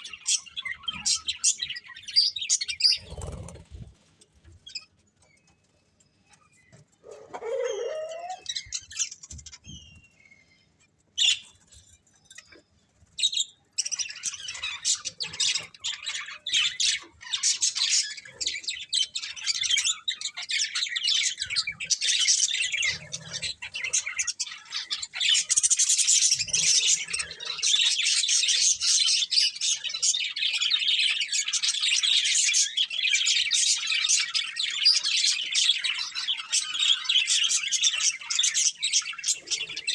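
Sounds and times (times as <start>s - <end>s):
budgerigars chattering and chirping: 0.0s - 3.9s, 11.2s - 12.6s, 13.2s - 39.9s.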